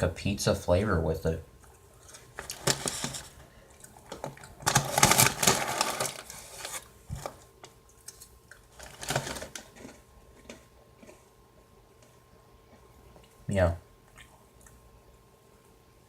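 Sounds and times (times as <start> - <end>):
crackers rattling in snack bag: 3.9 - 7.4, 8.6 - 10.6.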